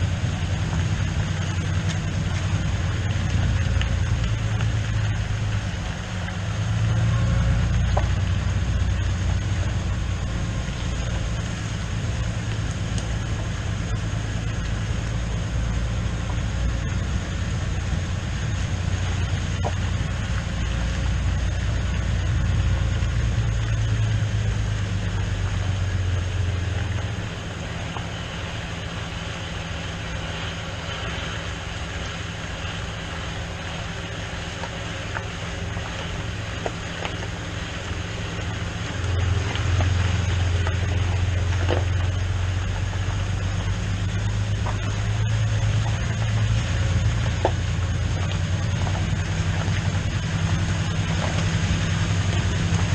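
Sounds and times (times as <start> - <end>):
tractor engine drone: 0.0 - 52.9.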